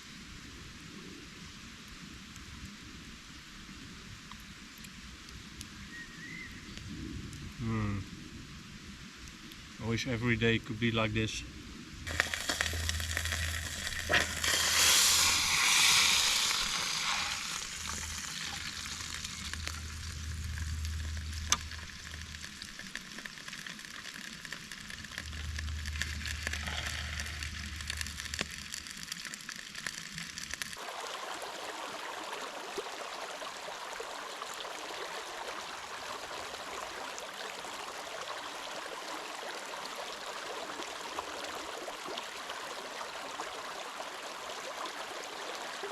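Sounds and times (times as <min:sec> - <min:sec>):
steady hiss: 0:00.0 - 0:31.2
steak sizzling over embers: 0:12.0 - 0:30.8.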